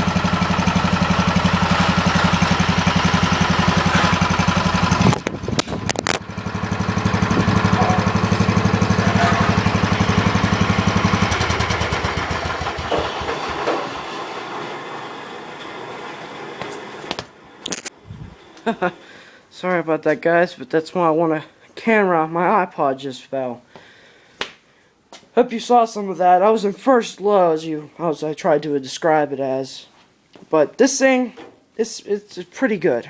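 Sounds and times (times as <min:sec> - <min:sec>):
garden tractor engine running: 0:00.0 - 0:17.9
sharp clattering knocks: 0:04.9 - 0:06.3, 0:08.3 - 0:14.2.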